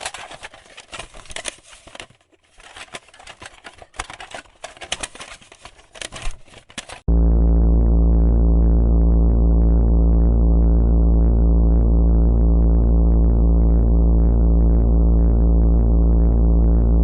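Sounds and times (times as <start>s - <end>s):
crackling and rustling: 0.0s - 7.1s
low electronic buzz: 7.1s - 17.0s.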